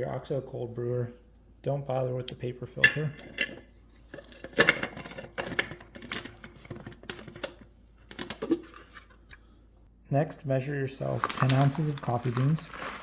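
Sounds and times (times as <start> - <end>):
kitchen items knocking and clinking: 2.7 - 9.2.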